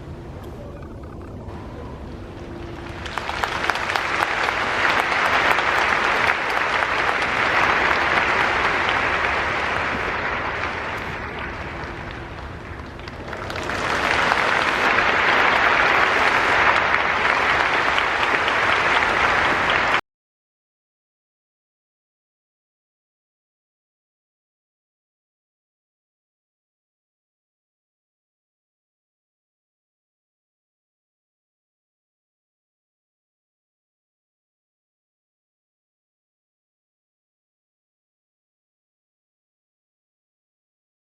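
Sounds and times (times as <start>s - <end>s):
stadium crowd applauding: 2.4s - 20.0s.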